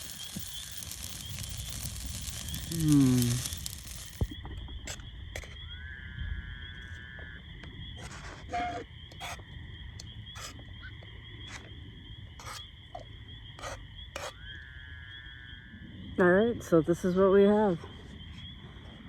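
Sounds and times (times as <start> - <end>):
sharp pops and clicks: 0.0 - 5.6
pulsing insect trill: 0.0 - 19.0.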